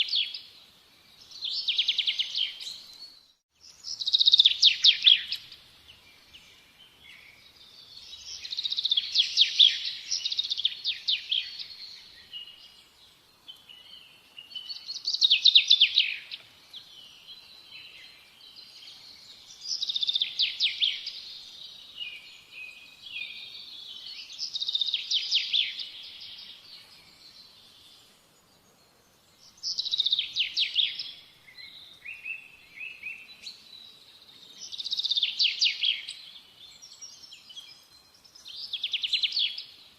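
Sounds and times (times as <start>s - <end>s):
songbird trilling: 3.7s - 5.6s.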